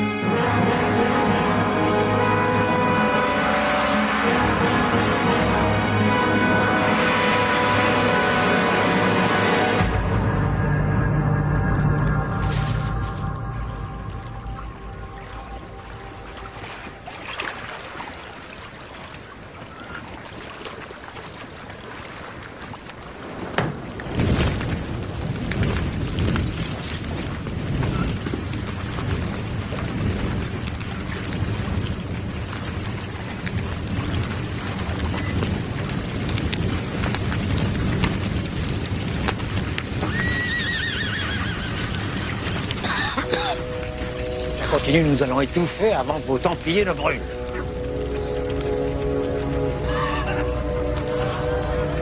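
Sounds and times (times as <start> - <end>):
fire crackles: 11.5 - 17.1, 20.8 - 52.0
large fire rushing: 22.9 - 52.0
horse whinnying: 40.0 - 42.5.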